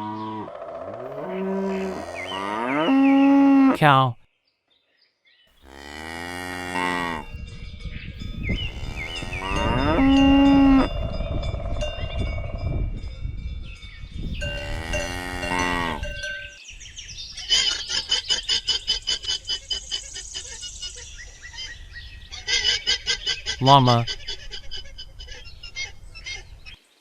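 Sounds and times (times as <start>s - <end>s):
cows mooing: 0.0s - 3.8s, 5.6s - 7.4s, 8.5s - 11.1s, 14.4s - 16.5s
cowbells clinking: 7.3s - 16.6s.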